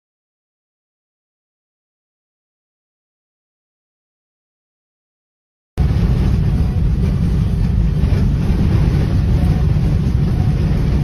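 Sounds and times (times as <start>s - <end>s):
vehicle road and wind noise: 5.8s - 11.0s.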